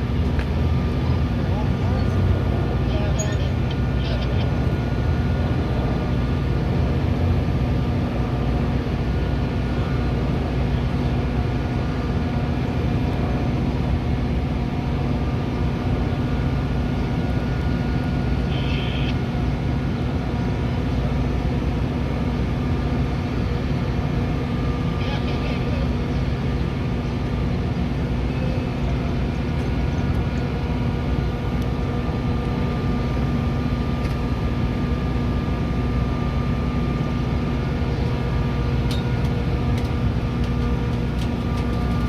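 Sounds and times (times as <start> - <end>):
machinery hum: 0.0 - 42.0
train drone: 0.0 - 42.0.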